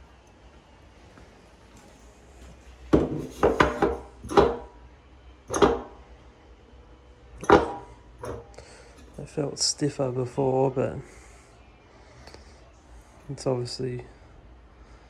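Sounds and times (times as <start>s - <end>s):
tools knocking and clattering: 2.4s - 4.7s, 5.5s - 6.0s, 7.4s - 9.2s.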